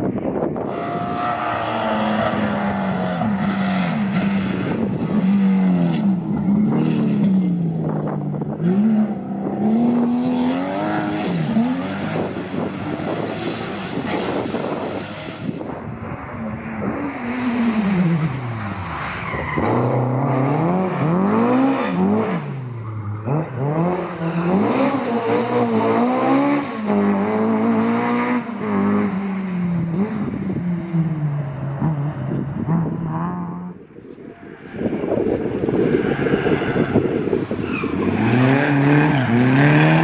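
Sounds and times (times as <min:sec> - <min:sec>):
rally car engine revving: 0:00.1 - 0:33.8, 0:34.7 - 0:40.0.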